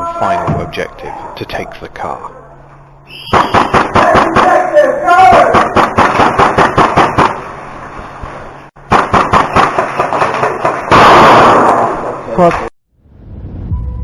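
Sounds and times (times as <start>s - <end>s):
airsoft gunfire: 3.3s - 7.5s, 8.9s - 12.2s.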